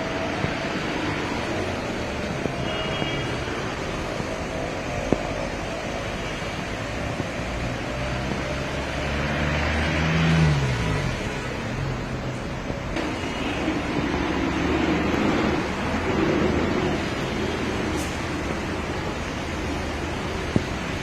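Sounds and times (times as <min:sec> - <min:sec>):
street noise: 0:00.0 - 0:21.0
vehicle engines running: 0:00.0 - 0:21.0
vehicle passing close: 0:06.8 - 0:12.2, 0:12.9 - 0:21.0.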